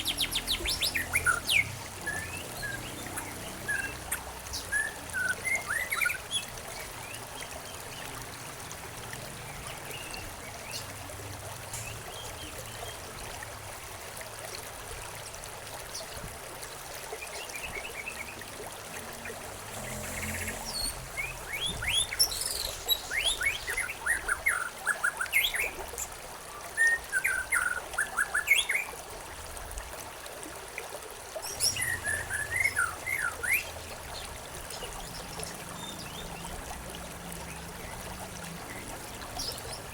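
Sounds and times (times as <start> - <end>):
small birds chirping: 0.0 - 6.5, 19.7 - 25.7, 31.4 - 36.6
stream trickling: 0.0 - 39.9.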